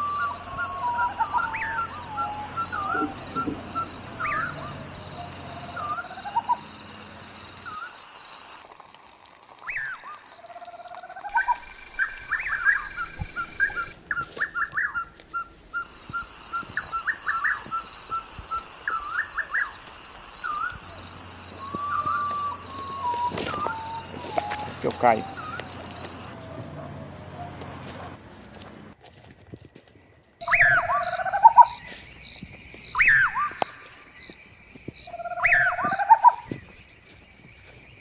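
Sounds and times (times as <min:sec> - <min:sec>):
birds calling and chirping: 0:00.0 - 0:07.9, 0:10.8 - 0:19.8, 0:20.4 - 0:28.2.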